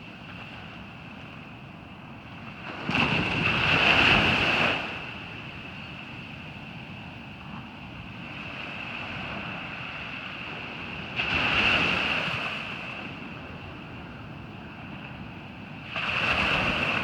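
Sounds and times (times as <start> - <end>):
ocean surf: 0.0 - 17.0
wave breaking and washing in: 14.7 - 17.0.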